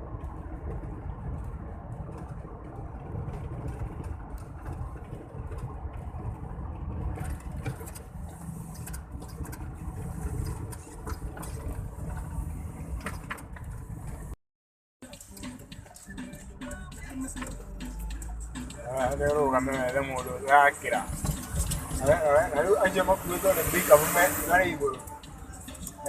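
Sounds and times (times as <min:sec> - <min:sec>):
truck engine running: 0:15.0 - 0:26.0
high hiss: 0:22.7 - 0:25.1.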